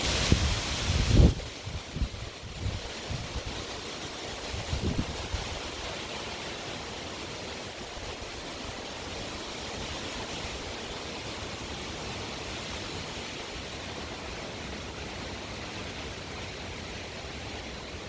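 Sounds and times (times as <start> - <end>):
strong wind blowing: 0.0 - 3.6, 4.4 - 5.7.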